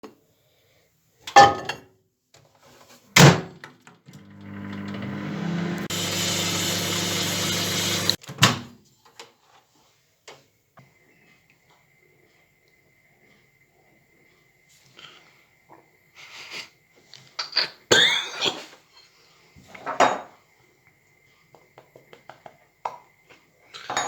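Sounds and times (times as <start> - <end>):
microwave oven humming: 4.1 - 8.2.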